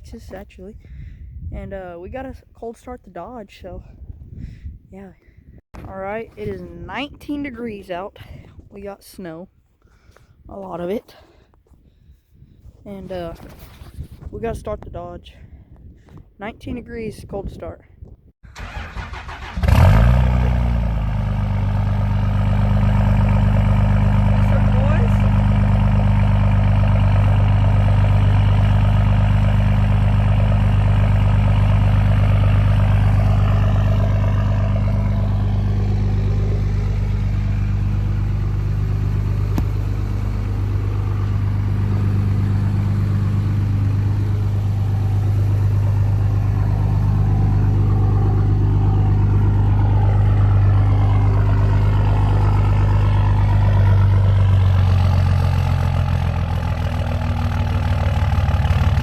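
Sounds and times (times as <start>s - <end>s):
diesel engine idling: 18.5s - 59.0s.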